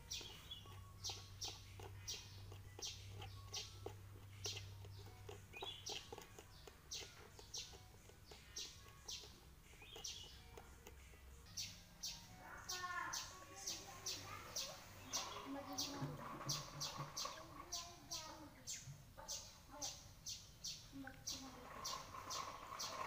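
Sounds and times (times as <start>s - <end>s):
small bird chirping: 0.0s - 23.0s.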